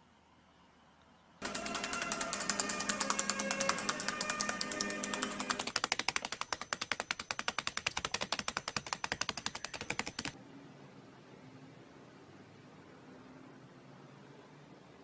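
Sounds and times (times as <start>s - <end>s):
rapid sharp clicks: 1.4s - 10.4s.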